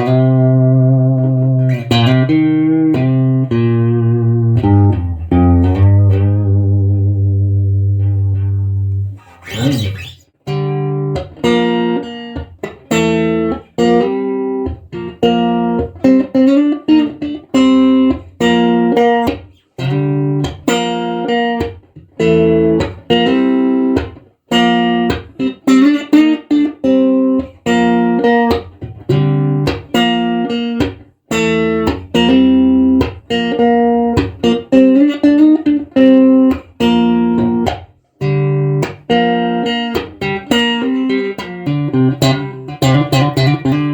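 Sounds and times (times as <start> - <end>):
electric guitar through amplifier: 0.0 - 25.8.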